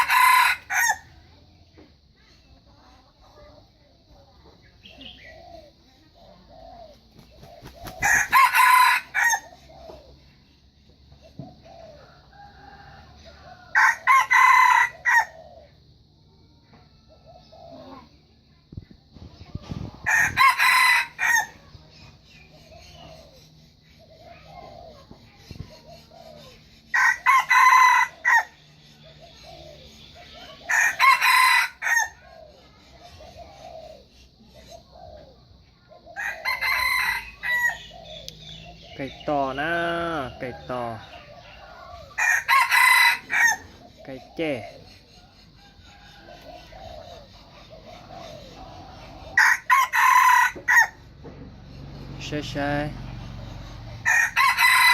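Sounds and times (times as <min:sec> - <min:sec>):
rooster crowing: 0:00.0 - 0:01.2, 0:07.8 - 0:09.6, 0:12.0 - 0:15.4, 0:20.0 - 0:21.6, 0:26.9 - 0:28.6, 0:30.6 - 0:32.2, 0:36.2 - 0:38.0, 0:40.6 - 0:43.8, 0:49.2 - 0:51.1, 0:53.9 - 0:54.9.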